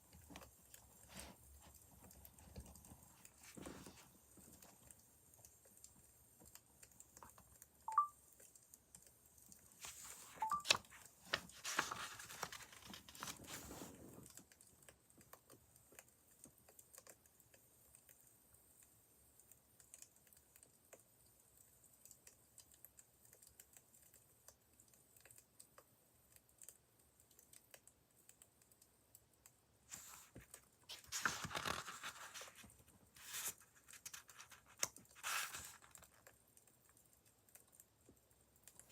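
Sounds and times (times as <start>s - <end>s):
rustling: 9.8s - 14.2s, 29.9s - 36.2s.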